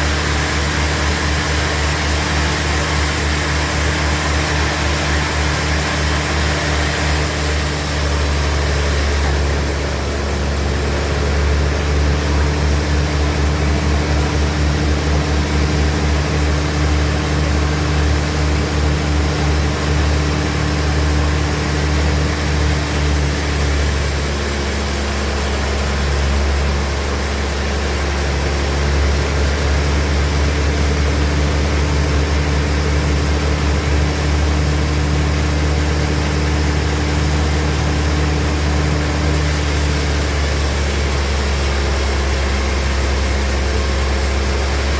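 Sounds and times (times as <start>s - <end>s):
sawmill machinery humming: 0.0s - 44.9s
light hiss: 7.0s - 13.2s, 22.4s - 29.0s, 36.9s - 44.9s.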